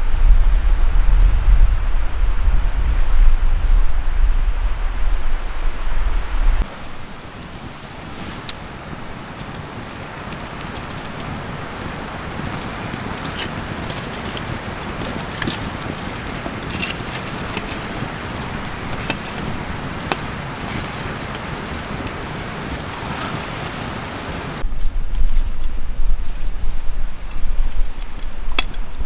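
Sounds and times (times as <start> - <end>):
low rumbling: 0.0 - 7.1
wood fire crackling: 0.0 - 29.0.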